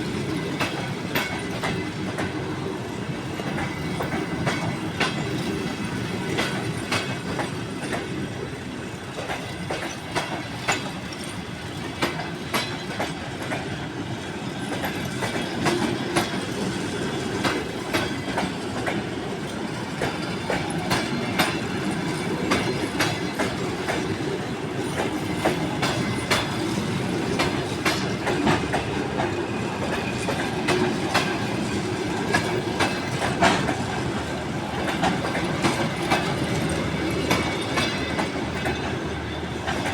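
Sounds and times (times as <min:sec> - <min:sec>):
wheels clicking over rail joints: 0:00.0 - 0:02.5, 0:09.1 - 0:13.9, 0:14.6 - 0:39.9
train wheels rumbling on rail: 0:00.0 - 0:39.9.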